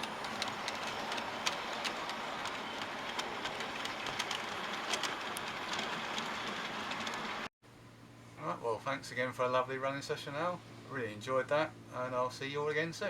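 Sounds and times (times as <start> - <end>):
model train wheels and motors: 0.0 - 7.5
wheels clicking on rail joints: 0.0 - 7.5.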